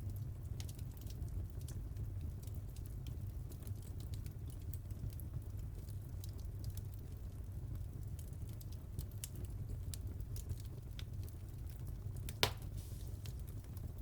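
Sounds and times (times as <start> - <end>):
low rumble of fire: 0.0 - 14.0
wood fire crackling: 0.0 - 14.0
sharp loud pop: 12.4 - 12.8.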